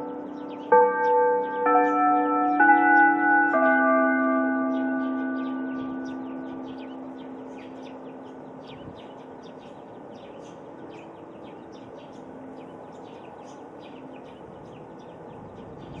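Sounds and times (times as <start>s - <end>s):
small birds chirping: 0.0s - 3.8s, 4.7s - 16.0s
outdoor loudspeaker chime: 0.0s - 13.4s
steady rush of wind: 7.4s - 16.0s.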